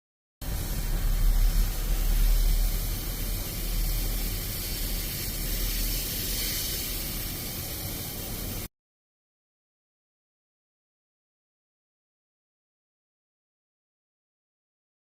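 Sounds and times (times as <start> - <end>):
low rumble: 0.4 - 5.5
hissing spray: 0.4 - 8.7.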